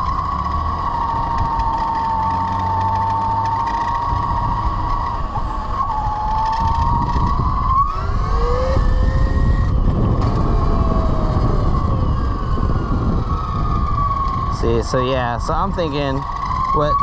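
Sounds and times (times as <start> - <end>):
electric motor whining: 0.0 - 17.0
road rumble: 0.0 - 17.0
wind: 0.0 - 17.0.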